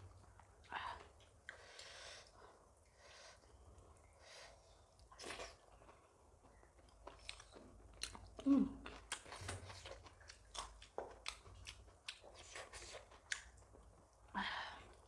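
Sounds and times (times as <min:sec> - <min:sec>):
chewing with wet mouth clicks: 0:01.2 - 0:02.0, 0:04.9 - 0:14.0.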